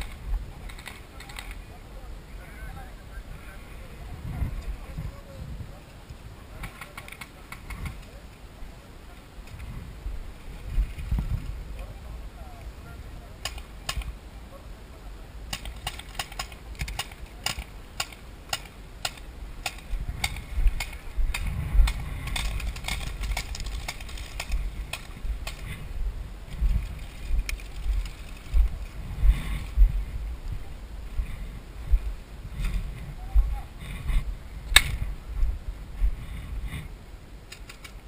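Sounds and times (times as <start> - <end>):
low uneven rumble: 0.0 - 38.0
sharp clicks and snaps: 13.4 - 14.1, 15.5 - 25.7, 26.8 - 28.9, 34.7 - 35.0, 37.5 - 38.0.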